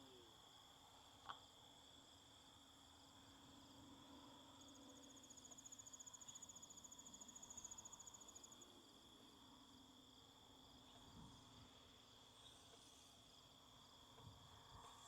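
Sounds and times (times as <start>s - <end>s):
high-pitched insect drone: 10.7s - 15.0s.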